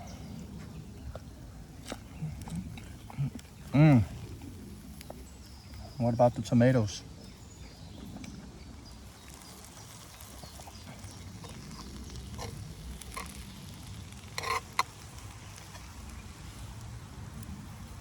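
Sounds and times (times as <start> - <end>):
low steady background noise: 0.0 - 18.0
utensil scraping frying pan: 9.1 - 16.6.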